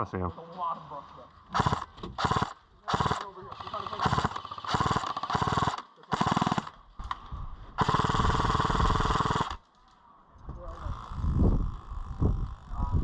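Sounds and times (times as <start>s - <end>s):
airsoft gun firing full auto: 1.5s - 6.8s, 7.8s - 9.6s.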